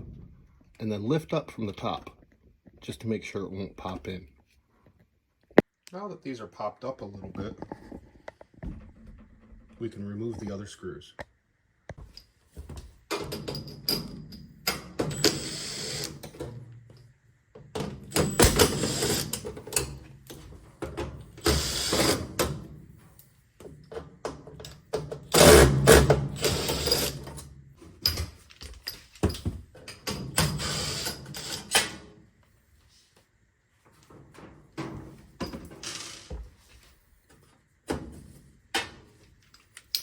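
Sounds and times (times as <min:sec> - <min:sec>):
power screwdriver motor whine: 0:15.2 - 0:16.2, 0:18.2 - 0:19.4, 0:21.4 - 0:22.3, 0:30.5 - 0:31.8.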